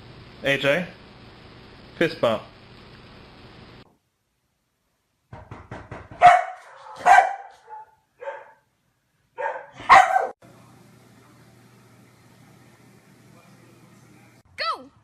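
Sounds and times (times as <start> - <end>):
dog barking: 6.2 - 8.7, 9.4 - 10.4.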